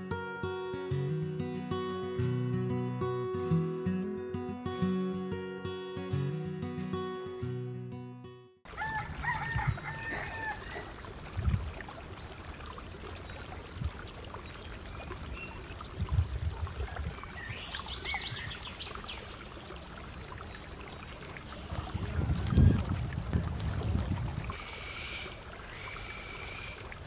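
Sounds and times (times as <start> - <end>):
guitar music: 0.0 - 8.6.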